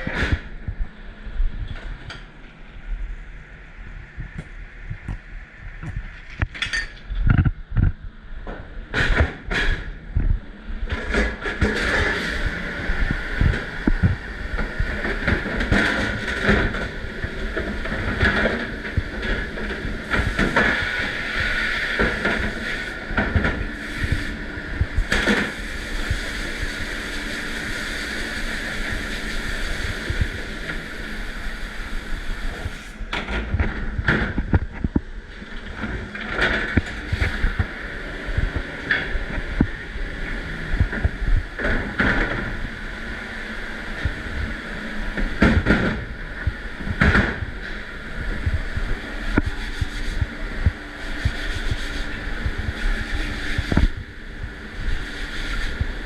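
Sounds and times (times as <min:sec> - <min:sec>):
dishwasher machine noise: 0:06.2 - 0:56.0
dishes and racks clattering: 0:06.5 - 0:07.4
spraying water: 0:17.7 - 0:33.0, 0:49.3 - 0:54.0, 0:54.8 - 0:56.0.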